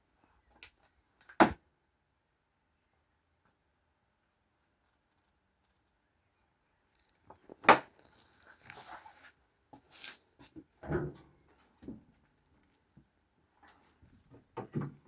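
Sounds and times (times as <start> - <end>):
scraping and rustling: 6.9 - 10.6.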